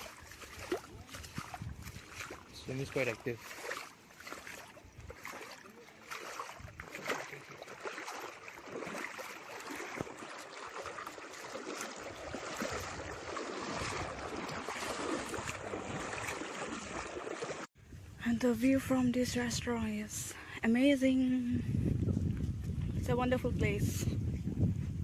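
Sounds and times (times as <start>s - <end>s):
stream rushing and splashing: 0.0s - 17.7s.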